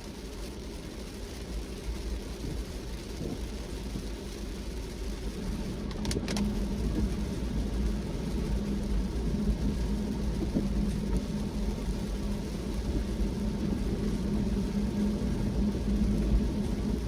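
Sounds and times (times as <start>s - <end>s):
car road and engine rumble: 0.0s - 17.0s
steady hum: 5.2s - 17.0s.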